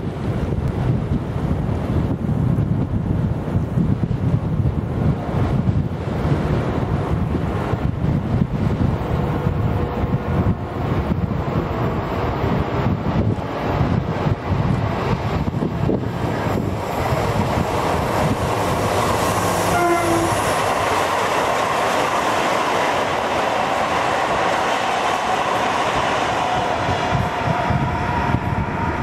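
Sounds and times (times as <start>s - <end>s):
diesel locomotive rumble: 0.0s - 29.0s
train horn note: 19.3s - 20.6s.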